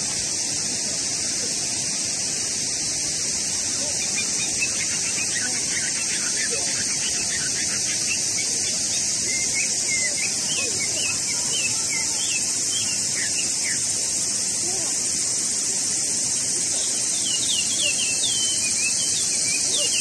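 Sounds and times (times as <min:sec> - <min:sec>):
steady high hiss: 0:00.0 - 0:20.0
bird chirping: 0:03.7 - 0:14.4, 0:16.7 - 0:20.0.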